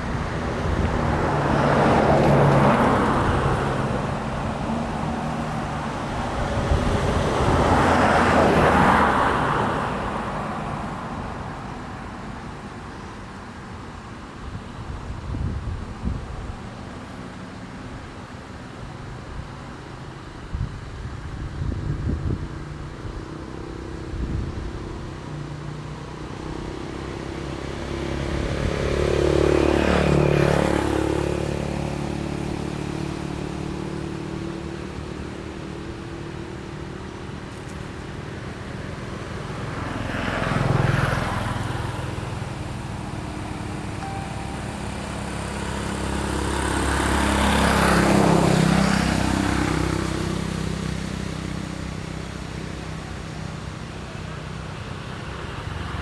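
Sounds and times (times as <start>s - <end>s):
steady engine hum: 0.0s - 8.7s, 20.7s - 56.0s
vehicles passing on road: 0.0s - 56.0s.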